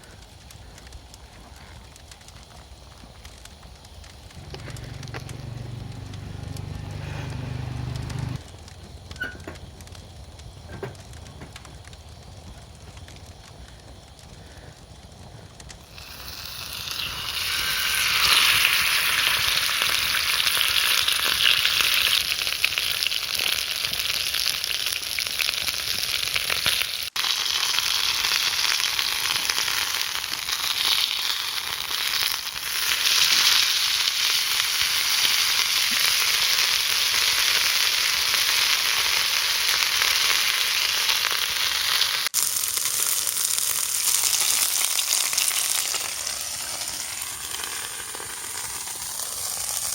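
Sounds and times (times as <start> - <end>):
chicken sizzling in a pan: 3.9 - 8.4, 15.3 - 49.9.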